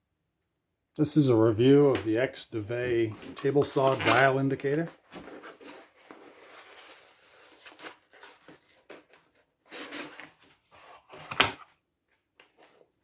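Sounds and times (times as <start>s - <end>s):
packaging rustling: 2.9s - 11.6s.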